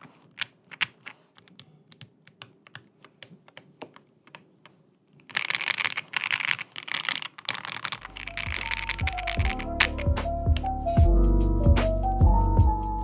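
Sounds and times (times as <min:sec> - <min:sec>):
mechanical keyboard typing: 0:00.0 - 0:11.1
music: 0:08.1 - 0:13.0.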